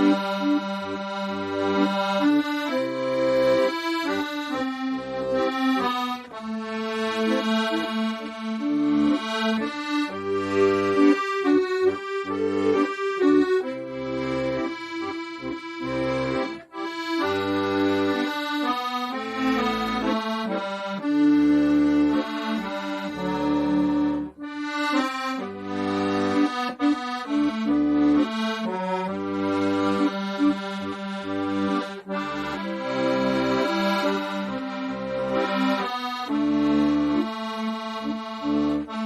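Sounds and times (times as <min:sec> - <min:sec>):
accordion melody: 0:00.0 - 0:39.0.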